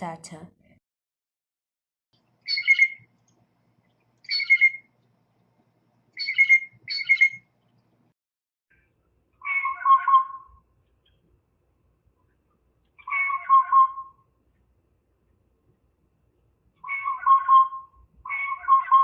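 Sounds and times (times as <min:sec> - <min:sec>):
blue jay harsh calls: 0:02.5 - 0:03.0, 0:04.3 - 0:04.8, 0:06.2 - 0:07.4, 0:09.4 - 0:10.5, 0:13.0 - 0:14.1, 0:16.8 - 0:19.0.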